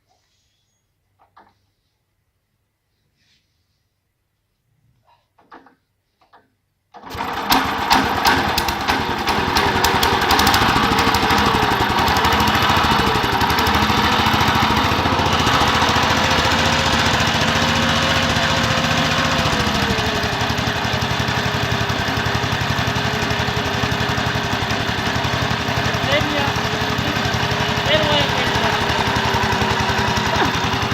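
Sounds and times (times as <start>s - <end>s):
single-cylinder engine running: 7.0s - 30.9s.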